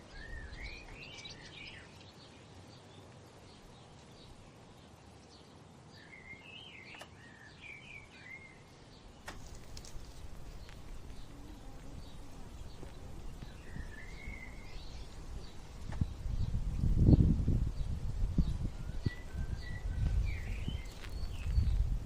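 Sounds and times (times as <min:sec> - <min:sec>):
songbird warbling: 0:09.2 - 0:16.8.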